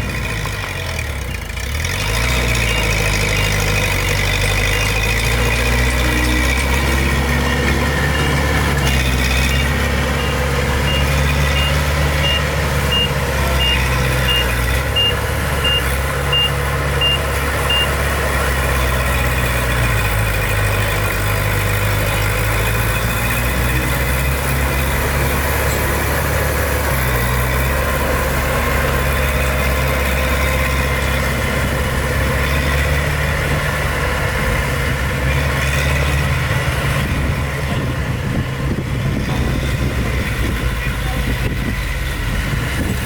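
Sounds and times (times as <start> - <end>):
heavy diesel engine idling: 0.0 - 43.0
reversing alarm beeps: 9.5 - 17.9.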